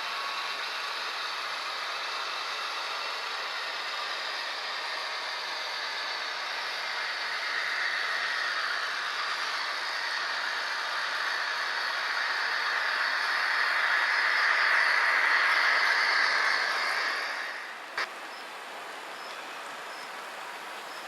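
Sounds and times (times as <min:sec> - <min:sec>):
model train wheels rattling on rail: 0:00.0 - 0:17.8
model train motor whir: 0:00.0 - 0:18.0.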